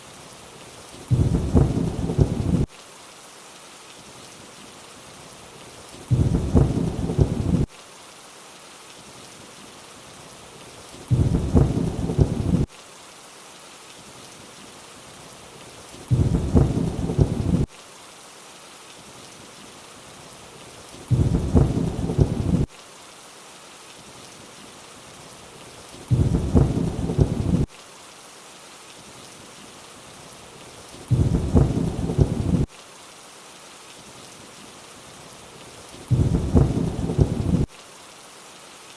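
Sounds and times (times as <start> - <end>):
rain hiss: 0.0 - 38.9
thunder rumble: 1.1 - 2.7, 6.1 - 7.7, 11.1 - 12.7, 16.1 - 17.7, 21.1 - 22.7, 26.1 - 27.7, 31.1 - 32.7, 36.1 - 37.7.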